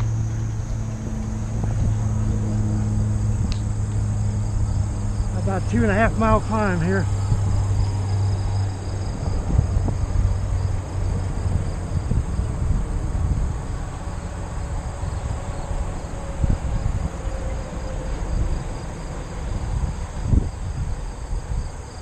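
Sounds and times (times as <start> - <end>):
bicycle rumbling: 0.0 - 22.0
insects chirring: 0.0 - 22.0.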